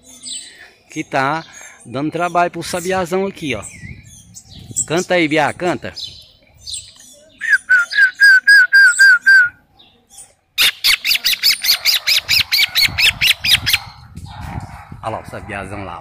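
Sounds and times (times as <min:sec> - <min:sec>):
bird whistling repeated notes: 0:07.4 - 0:09.6.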